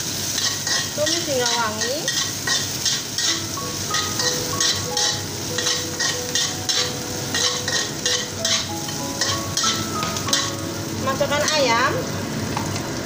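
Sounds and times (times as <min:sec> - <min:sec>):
spatula stirring in wok: 0:00.0 - 0:10.6
garlic sizzling in hot oil: 0:00.0 - 0:13.0
background music with held notes: 0:03.3 - 0:11.8.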